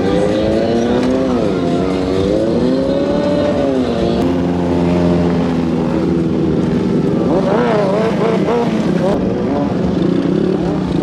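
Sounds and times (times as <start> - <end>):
motorcycle engines revving: 4.2 - 9.8.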